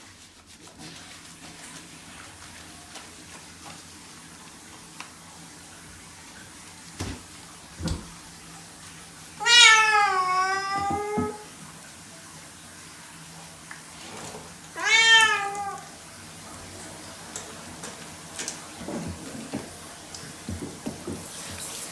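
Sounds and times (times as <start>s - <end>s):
cat meowing: 9.4s - 11.5s, 14.8s - 16.0s.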